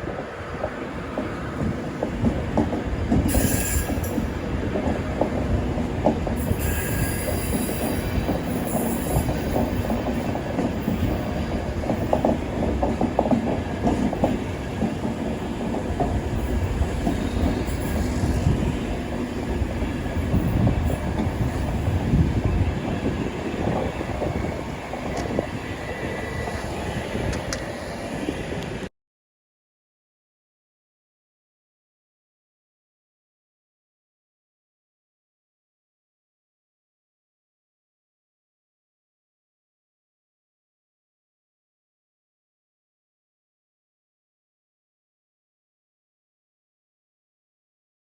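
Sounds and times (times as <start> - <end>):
train wheels clattering on rails: 0.1 - 27.8
high-pitched wheel squeal: 6.4 - 8.0.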